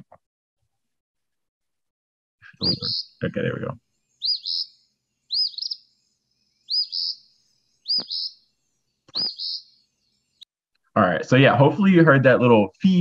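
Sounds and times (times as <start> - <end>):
bird singing two-part song: 2.5 - 3.3, 4.1 - 10.5.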